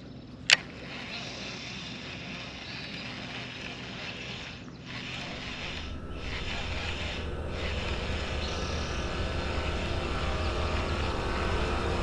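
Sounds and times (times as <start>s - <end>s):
wind: 0.0s - 12.0s
engine hum: 0.1s - 12.0s
water noise: 0.5s - 12.0s
low rumble: 4.8s - 12.0s.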